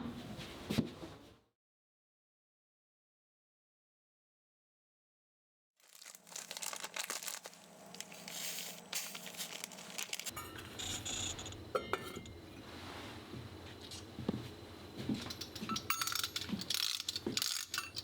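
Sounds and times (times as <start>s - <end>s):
wrapping crinkling and rustling: 5.8s - 11.3s.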